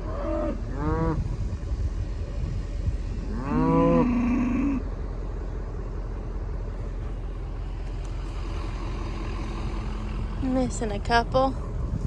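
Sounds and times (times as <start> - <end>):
cow mooing: 3.3 - 4.9
truck engine idling: 4.8 - 12.0.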